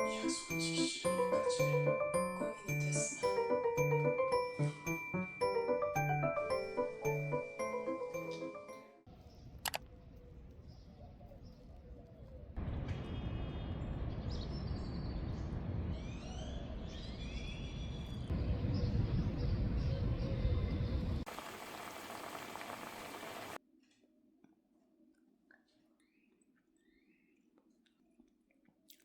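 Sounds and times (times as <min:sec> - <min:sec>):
wind rumbling on microphone: 0:09.3 - 0:23.6
birds chirping: 0:13.9 - 0:23.6.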